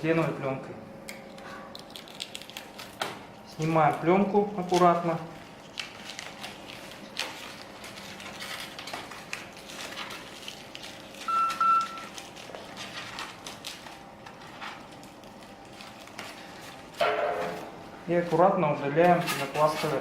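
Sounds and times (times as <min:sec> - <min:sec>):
plastic film crinkling: 0:01.4 - 0:17.0.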